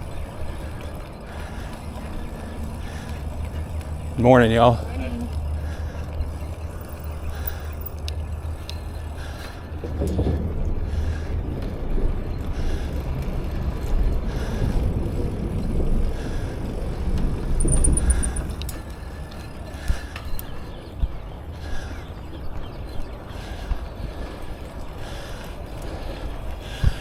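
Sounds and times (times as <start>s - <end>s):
bicycle tyres rolling on pavement: 0.0s - 27.0s.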